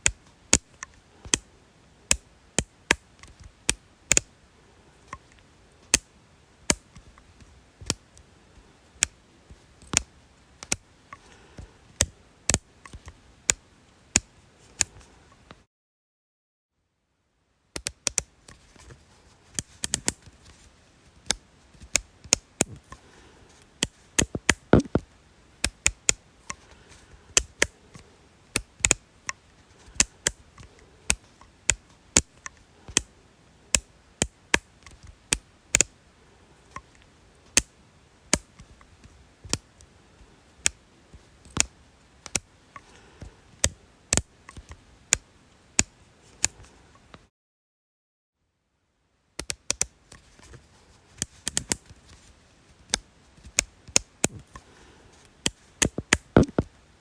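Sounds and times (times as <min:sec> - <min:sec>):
sharp clicks: 0:23.8 - 0:25.0, 0:55.8 - 0:56.7.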